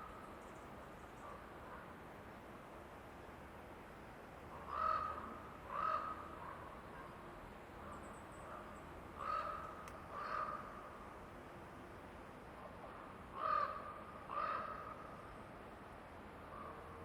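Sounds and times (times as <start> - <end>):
quiet forest background: 0.0 - 17.0
crow cawing: 4.7 - 6.2, 9.2 - 10.7, 13.4 - 15.0.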